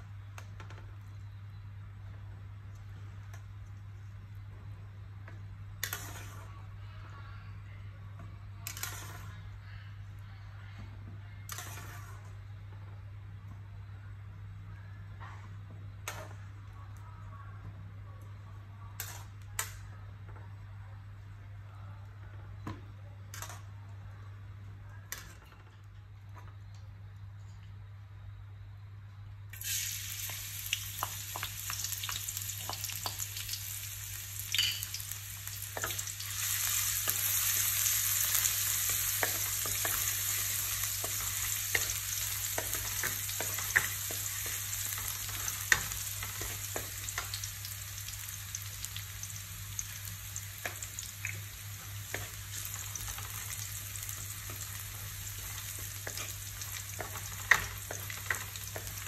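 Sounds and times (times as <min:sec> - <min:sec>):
onions sizzling in hot oil: 0:29.6 - 0:59.0.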